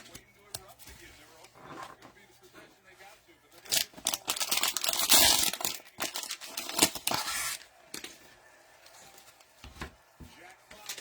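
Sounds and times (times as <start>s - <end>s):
plastic wrapper crinkling and tearing: 3.6s - 8.1s.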